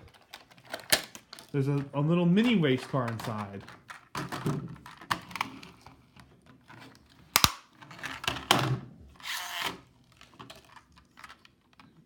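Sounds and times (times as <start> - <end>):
sharp plastic snap: 0.7 - 1.3, 7.3 - 7.7.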